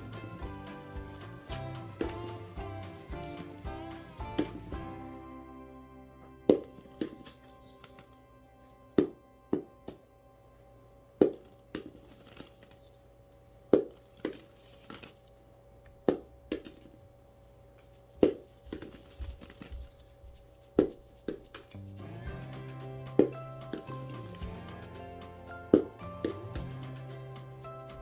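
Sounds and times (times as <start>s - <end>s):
faint background music: 0.0s - 28.0s
rubber ball bouncing: 1.5s - 5.0s, 6.5s - 8.1s, 9.0s - 10.0s, 11.2s - 12.7s, 13.7s - 15.1s, 15.9s - 17.0s, 18.1s - 20.1s, 20.7s - 21.9s, 23.1s - 24.6s, 25.5s - 27.0s.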